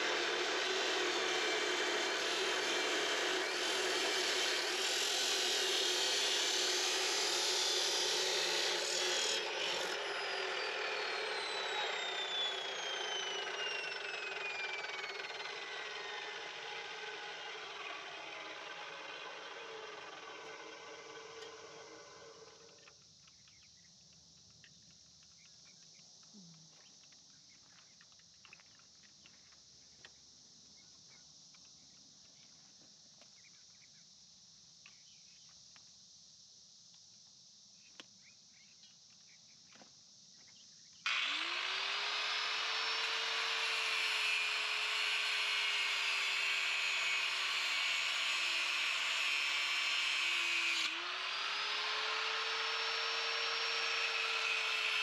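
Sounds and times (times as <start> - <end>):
angle grinder cutting steel: 0.0 - 22.7, 41.1 - 55.0.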